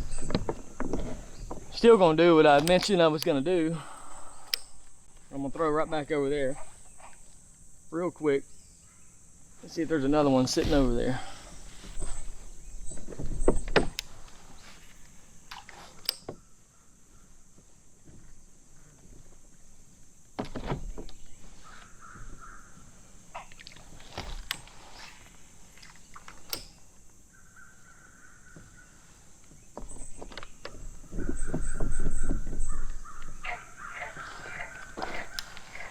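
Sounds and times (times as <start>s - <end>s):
crows cawing: 21.6s - 23.8s, 31.1s - 35.9s.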